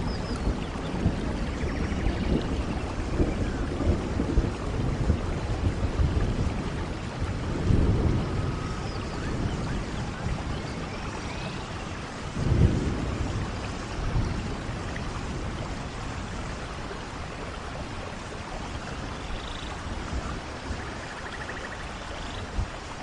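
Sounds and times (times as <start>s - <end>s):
steady rain falling: 0.0s - 23.0s
thunder rumbling: 0.0s - 23.0s.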